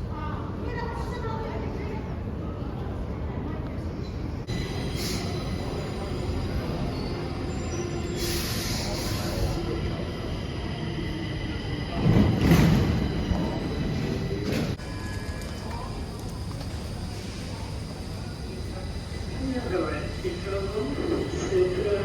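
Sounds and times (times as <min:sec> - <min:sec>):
hiss: 0:08.2 - 0:09.6.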